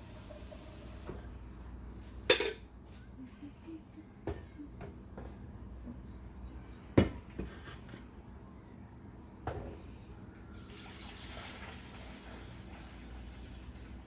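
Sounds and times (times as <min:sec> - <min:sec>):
hot water hissing through machine: 0:00.0 - 0:01.3, 0:10.5 - 0:14.0.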